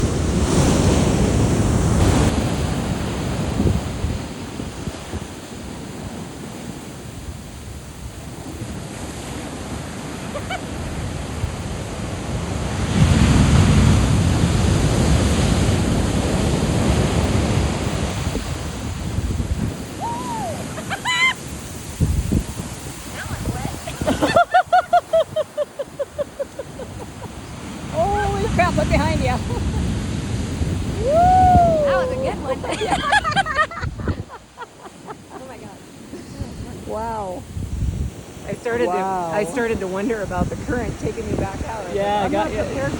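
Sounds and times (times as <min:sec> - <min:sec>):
ocean waves crashing on beach: 0:00.0 - 0:42.9
wind buffeting microphone: 0:00.0 - 0:42.9.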